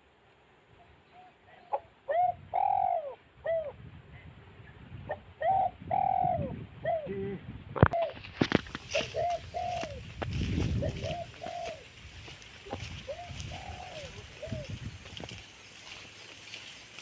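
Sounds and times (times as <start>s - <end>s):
bird cooing: 1.1s - 3.8s, 5.1s - 8.2s, 8.9s - 11.9s, 12.6s - 15.3s.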